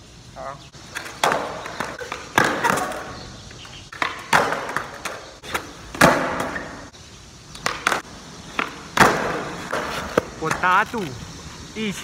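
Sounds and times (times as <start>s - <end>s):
skateboard wheels rolling: 0.8s - 12.0s
skateboard clacking on ground: 0.9s - 6.8s, 7.5s - 11.2s.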